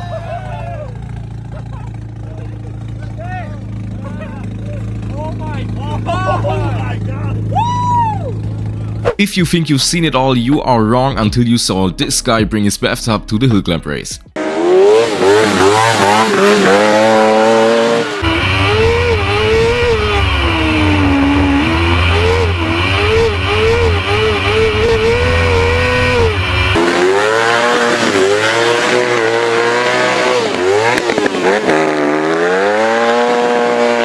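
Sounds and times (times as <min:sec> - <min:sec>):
racing car engine revving: 0:14.4 - 0:34.0.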